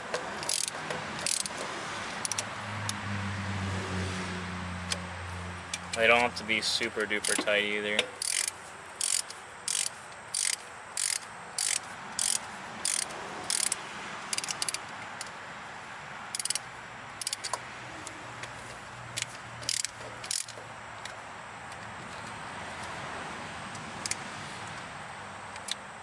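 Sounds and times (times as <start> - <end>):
ratchet wrench clicking: 0.4 - 3.0, 7.0 - 15.3, 16.3 - 18.2, 19.1 - 23.0, 25.5 - 25.8.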